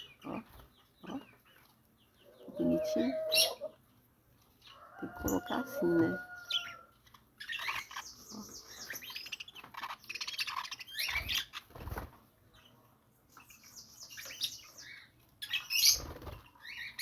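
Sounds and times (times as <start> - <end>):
budgerigars chirping and chattering: 0.0 - 3.8, 4.5 - 17.0.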